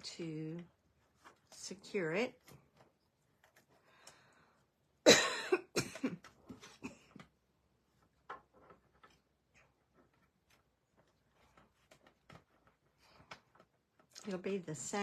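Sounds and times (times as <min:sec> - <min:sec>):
woman coughing: 0:05.0 - 0:07.0.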